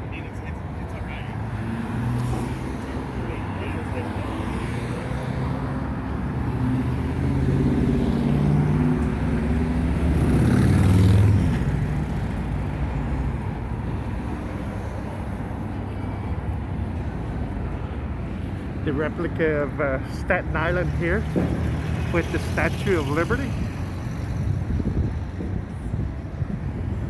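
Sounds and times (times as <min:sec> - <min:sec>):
road traffic: 0:00.0 - 0:27.0
vehicle passing close by: 0:01.4 - 0:13.6.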